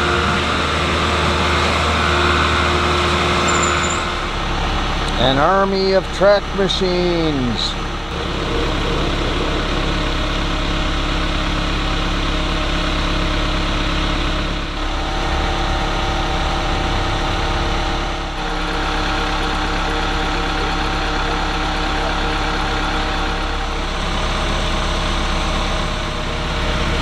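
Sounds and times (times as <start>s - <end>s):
diesel engines idling: 0.0s - 27.0s.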